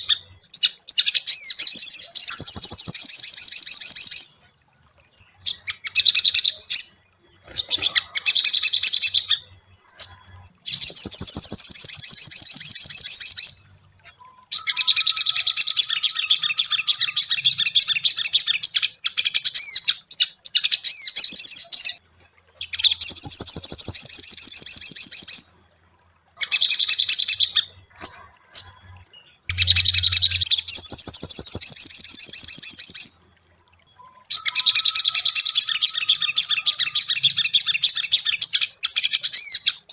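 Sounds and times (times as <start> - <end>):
bird singing chattering phrases: 0.0 - 39.9.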